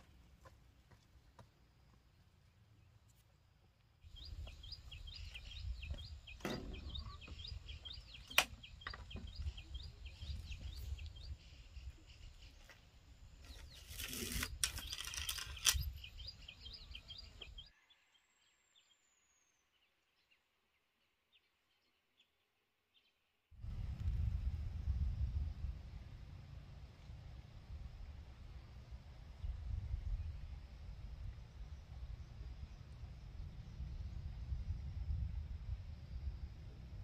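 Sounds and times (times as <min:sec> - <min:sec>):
small birds chirping: 0:04.0 - 0:23.3
wind on microphone: 0:04.2 - 0:12.5, 0:23.6 - 0:26.2, 0:29.3 - 0:32.1, 0:33.0 - 0:37.0.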